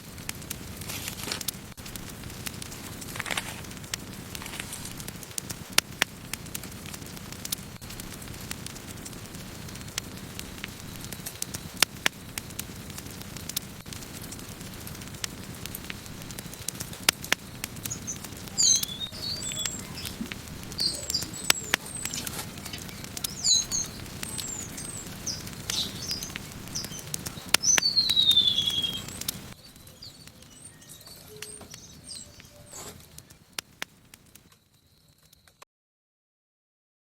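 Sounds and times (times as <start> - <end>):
campfire crackling and popping: 0.0 - 35.6
small birds chirping: 9.2 - 35.5
long falling whistled call: 17.4 - 33.4.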